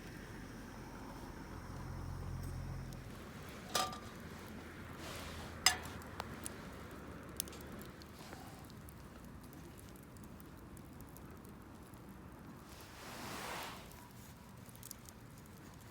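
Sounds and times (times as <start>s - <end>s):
cookware clinking: 3.7s - 4.1s.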